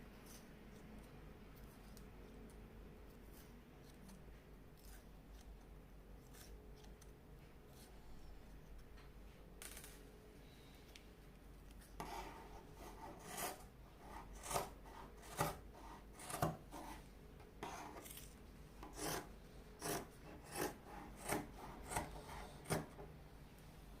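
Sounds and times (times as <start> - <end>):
gritty scraping of scissors: 6.2 - 7.1, 12.0 - 15.6, 17.6 - 23.0.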